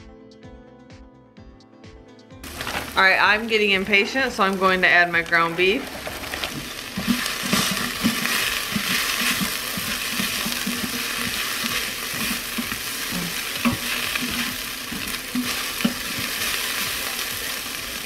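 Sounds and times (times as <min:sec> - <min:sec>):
meat sizzling in a pot: 0:02.4 - 0:18.0
spoon stirring and scraping: 0:05.8 - 0:17.5.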